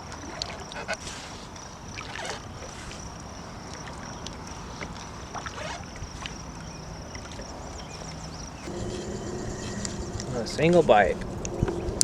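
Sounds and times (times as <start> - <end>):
light wind: 0.0 - 12.0
water splashing and dripping: 1.5 - 8.7.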